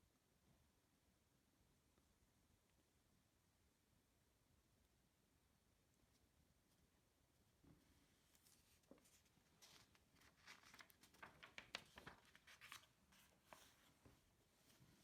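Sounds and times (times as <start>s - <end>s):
faint rustling: 7.6s - 15.0s.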